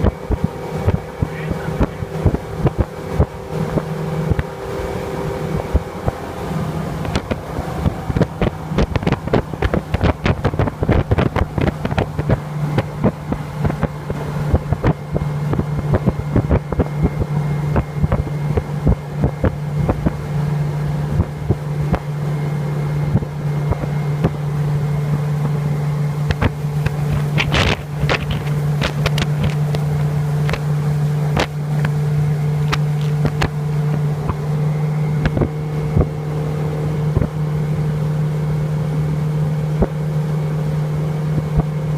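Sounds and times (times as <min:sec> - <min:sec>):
wind hitting microphone: 0:00.0 - 0:38.0
motorboat engine running: 0:00.0 - 0:41.9
boat hull thumping on waves: 0:07.0 - 0:20.2, 0:26.2 - 0:34.5, 0:39.8 - 0:40.0.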